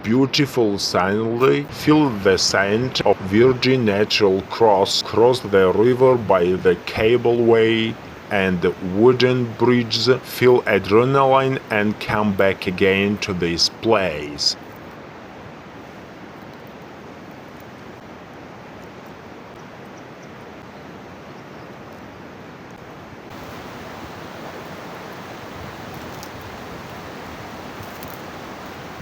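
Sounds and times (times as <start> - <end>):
stream water rushing: 23.3 - 29.0.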